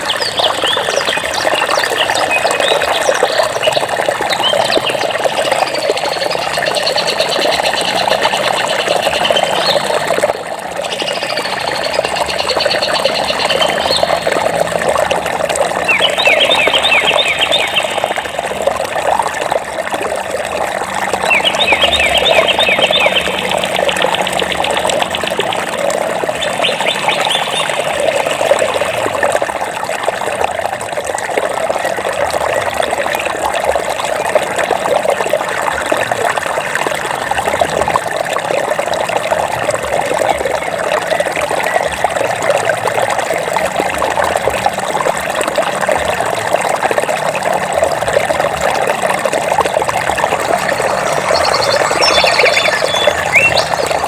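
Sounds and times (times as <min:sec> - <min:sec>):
songbirds trilling and chirping: 0:00.0 - 0:14.6, 0:15.7 - 0:18.6, 0:21.2 - 0:29.1, 0:49.6 - 0:54.0
running water: 0:00.0 - 0:54.0.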